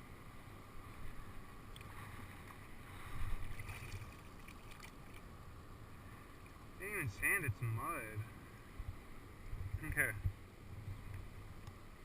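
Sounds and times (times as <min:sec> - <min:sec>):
river water sloshing: 0:00.3 - 0:09.4
wind rumble on microphone: 0:07.4 - 0:12.0.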